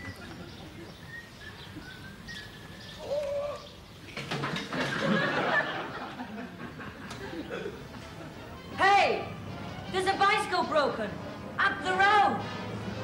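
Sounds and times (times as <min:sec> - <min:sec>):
birds calling: 0:00.0 - 0:08.6.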